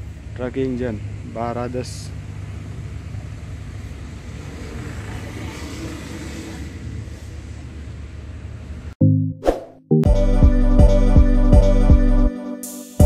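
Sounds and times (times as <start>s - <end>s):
truck engine running steadily: 0.0s - 5.3s.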